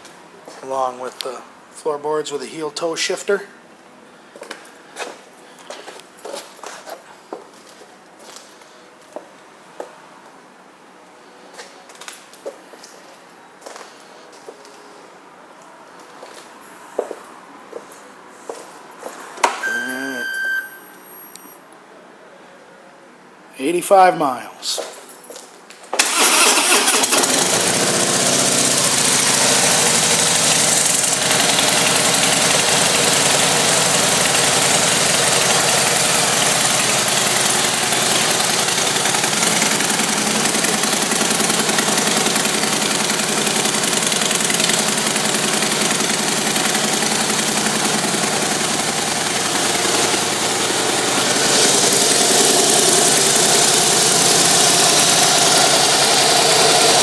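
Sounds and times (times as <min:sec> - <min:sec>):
motorcycle engine starting and idling: 0:26.0 - 0:57.0.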